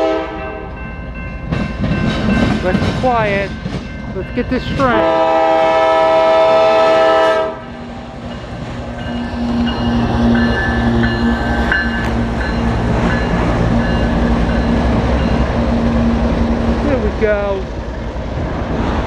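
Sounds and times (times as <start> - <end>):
locomotive horn: 0.0 - 0.8, 4.7 - 7.8
train passing with low rumble: 0.0 - 19.0.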